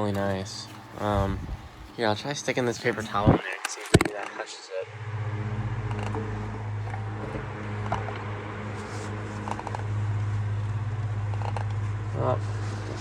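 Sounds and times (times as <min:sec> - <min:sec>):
electric fan buzzing rattle: 0:00.0 - 0:13.0
paper towel rustling: 0:08.8 - 0:10.4.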